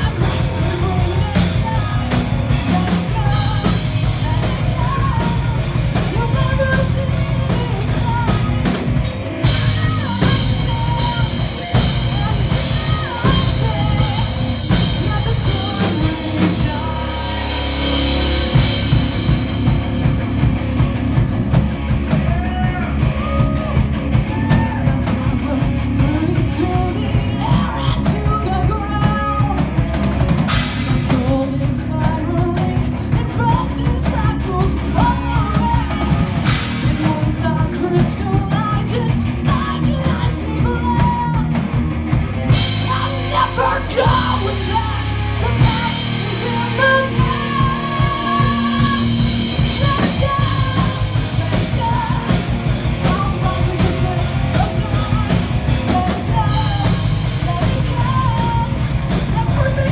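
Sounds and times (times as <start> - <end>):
person singing: 0.0 - 19.7, 42.5 - 59.9
live metal band playing: 0.0 - 59.9.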